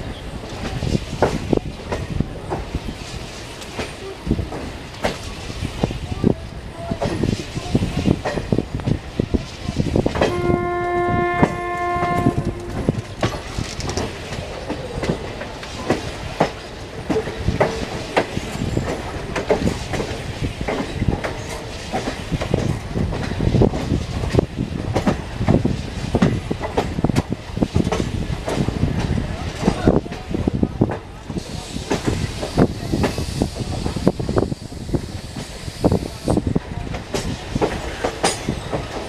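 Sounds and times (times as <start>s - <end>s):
train wheels clicking over rail joints: 0.0s - 39.0s
train horn: 10.2s - 13.2s.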